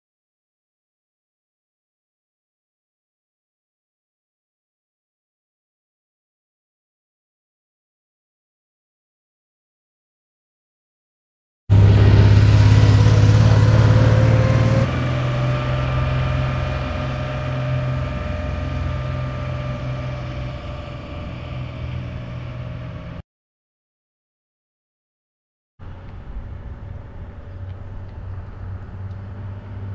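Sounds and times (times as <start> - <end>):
car engine driving away: 11.7 - 23.2, 25.8 - 29.9.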